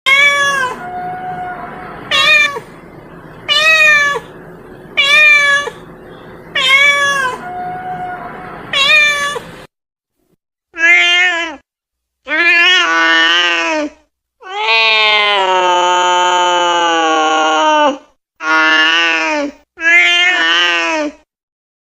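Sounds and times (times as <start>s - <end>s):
cat meowing: 0.1s - 2.7s, 3.5s - 4.4s, 5.0s - 5.9s, 6.5s - 9.5s.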